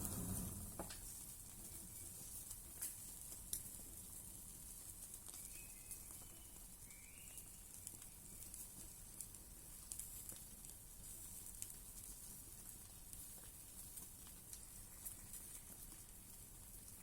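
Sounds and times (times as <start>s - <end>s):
steady hiss: 0.0s - 3.1s
wood fire crackling: 0.0s - 17.0s
faint high whistle: 5.4s - 7.6s.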